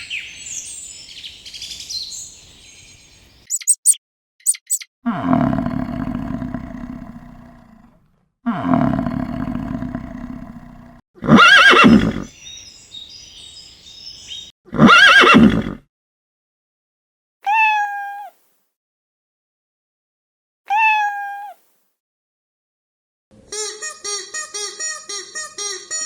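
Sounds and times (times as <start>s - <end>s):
faint high chirping: 0.0s - 4.9s
deep animal roar: 5.1s - 12.3s
horse whinnies: 11.2s - 12.3s, 14.7s - 15.8s.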